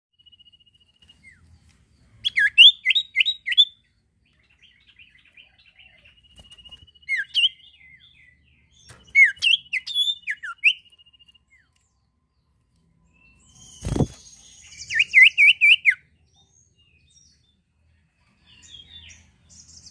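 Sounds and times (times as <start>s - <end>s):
songbird whistled notes: 0.2s - 1.6s, 2.2s - 3.8s, 4.4s - 12.0s, 13.0s - 16.0s.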